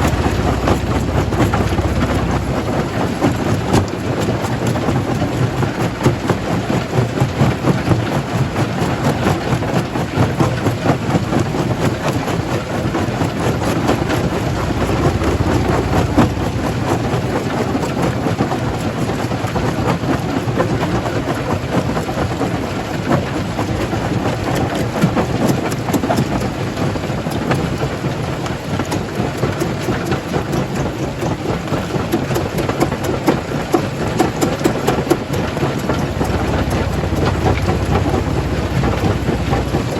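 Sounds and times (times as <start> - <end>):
rock crusher rumbling: 0.0 - 6.4, 12.6 - 19.3, 32.1 - 39.9.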